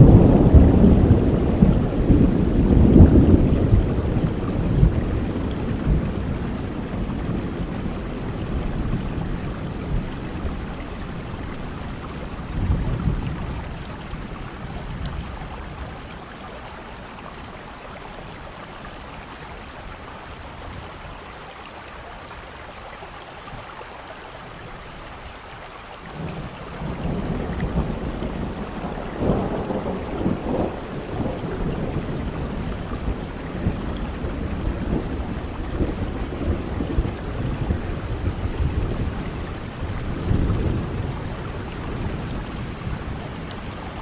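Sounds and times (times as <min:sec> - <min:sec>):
thunder rumbling: 0:00.0 - 0:19.3, 0:26.1 - 0:44.0
steady rain falling: 0:00.0 - 0:44.0.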